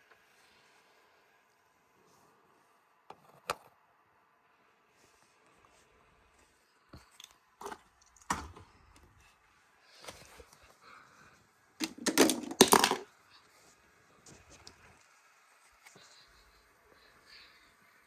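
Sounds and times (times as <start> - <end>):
clicks and knocks: 11.8 - 13.0.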